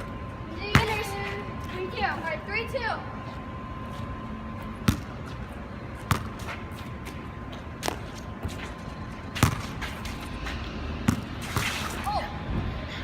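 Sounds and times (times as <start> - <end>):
basketball bouncing on wet court: 0.7 - 1.0, 6.1 - 6.4, 9.4 - 9.7, 11.1 - 11.8.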